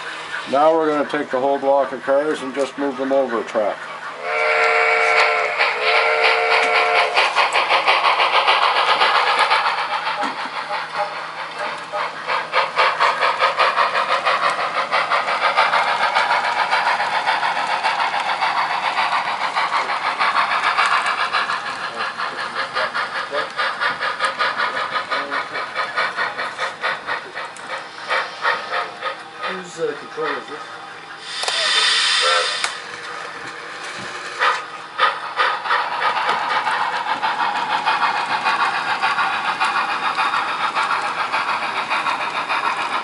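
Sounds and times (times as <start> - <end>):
model locomotive chuffing: 0.0 - 43.0
model locomotive whistle: 4.2 - 7.2, 31.2 - 32.8.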